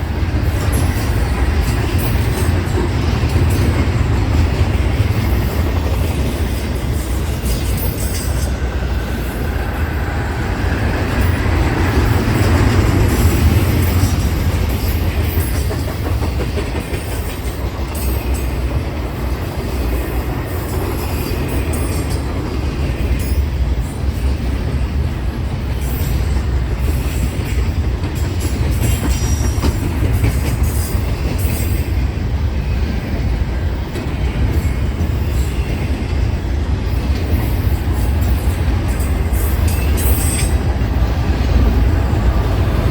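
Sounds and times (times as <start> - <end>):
freight train rumbling past: 0.0 - 42.9.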